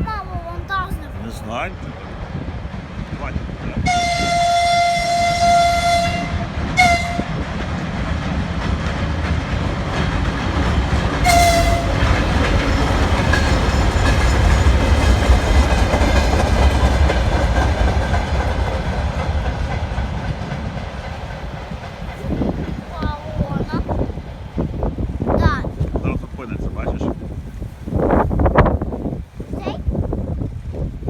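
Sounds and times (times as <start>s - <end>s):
passing train rumble: 0.0s - 31.0s
train horn: 3.8s - 7.4s, 11.2s - 12.4s.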